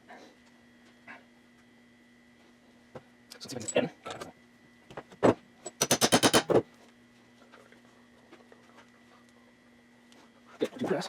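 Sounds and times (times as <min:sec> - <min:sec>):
sharp metal knocks: 0:05.7 - 0:06.6.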